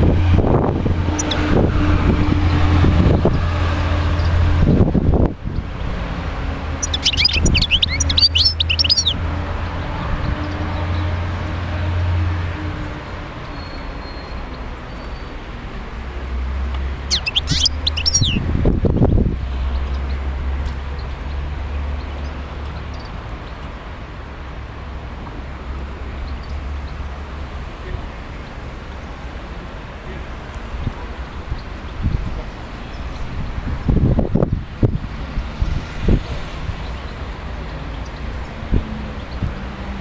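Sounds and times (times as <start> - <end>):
goldfinch twittering chirps: 1.1 - 1.5, 6.7 - 9.2, 17.0 - 18.4.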